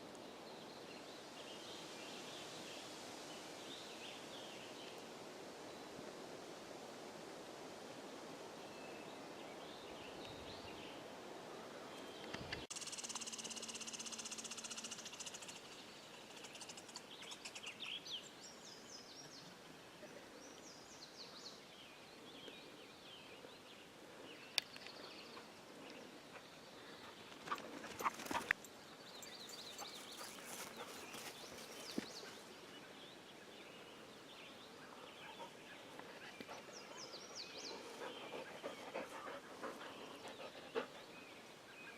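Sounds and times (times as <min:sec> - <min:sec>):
small songbirds chirping: 0:00.0 - 0:06.2, 0:08.4 - 0:41.9.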